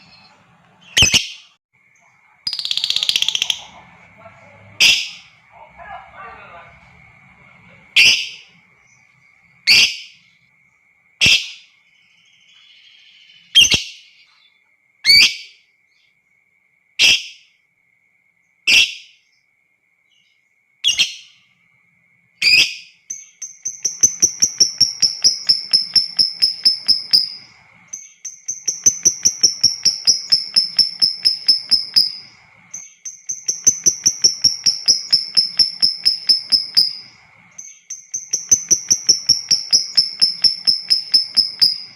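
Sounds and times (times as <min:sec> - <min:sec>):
lovebird chattering trills: 0:00.0 - 0:01.5, 0:02.5 - 0:09.1, 0:22.4 - 0:41.9.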